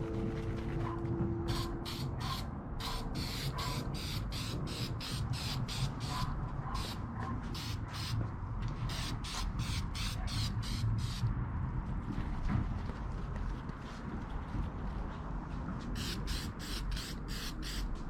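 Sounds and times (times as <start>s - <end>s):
aerosol spray can hissing: 1.5s - 6.2s, 8.9s - 11.2s, 16.0s - 17.9s.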